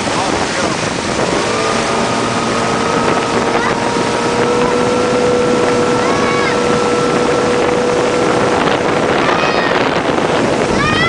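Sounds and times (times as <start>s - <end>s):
motorboat running: 0.0s - 11.0s
wind on microphone: 0.0s - 11.0s.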